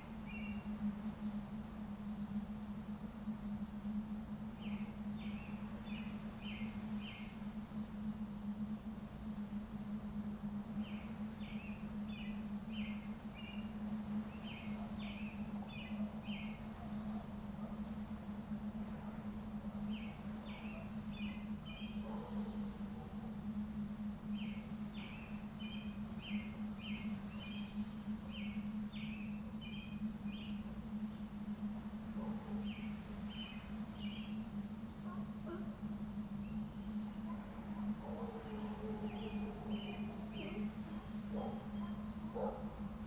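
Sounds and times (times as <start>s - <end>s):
steady low hum: 0.0s - 43.0s
bird chirping: 10.8s - 17.3s, 19.9s - 23.0s, 24.3s - 31.3s, 32.2s - 35.8s, 36.4s - 43.0s.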